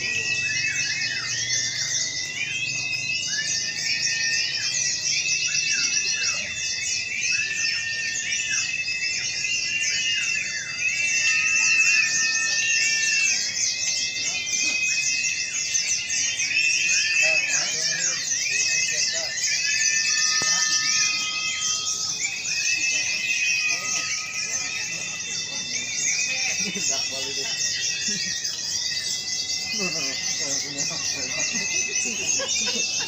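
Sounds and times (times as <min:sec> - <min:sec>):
birds twittering in chorus: 0:00.0 - 0:33.0.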